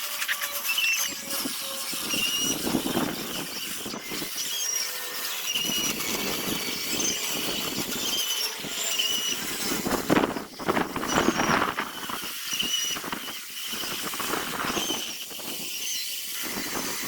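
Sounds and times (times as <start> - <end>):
short high squeaks: 0.0 - 17.0
wood sanding rasp: 0.0 - 17.0.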